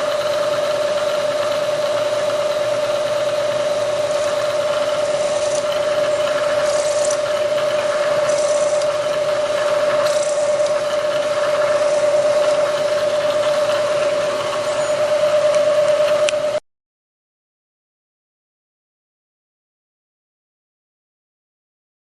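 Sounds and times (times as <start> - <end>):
machine tool whine: 0.0 - 16.6.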